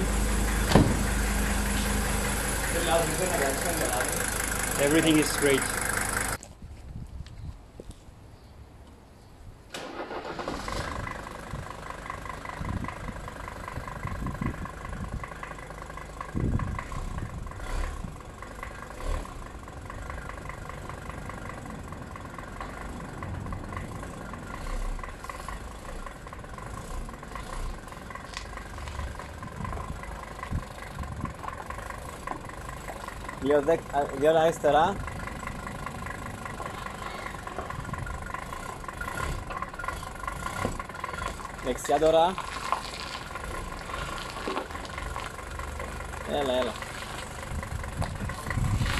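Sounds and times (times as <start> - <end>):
low thumps: 0.0 - 2.0
car engine idling: 0.0 - 6.4, 9.8 - 48.9.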